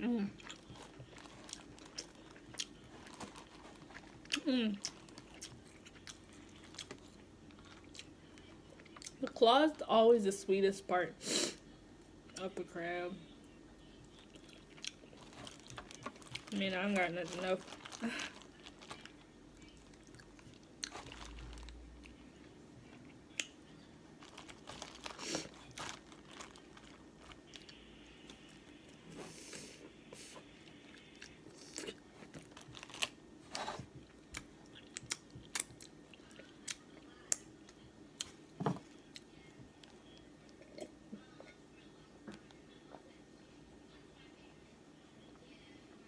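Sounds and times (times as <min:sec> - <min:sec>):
person chewing: 0:00.4 - 0:08.2, 0:14.0 - 0:16.6, 0:17.3 - 0:22.2, 0:24.2 - 0:36.8.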